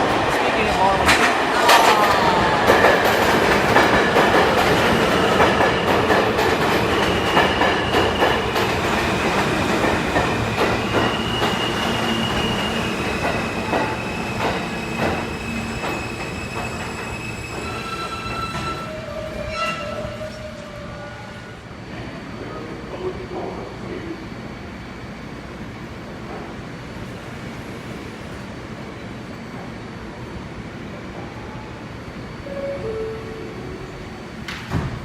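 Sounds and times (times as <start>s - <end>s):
subway train wheels clicking: 0.0s - 35.0s
train rumble: 0.0s - 35.0s
wheel squeal: 13.8s - 20.6s.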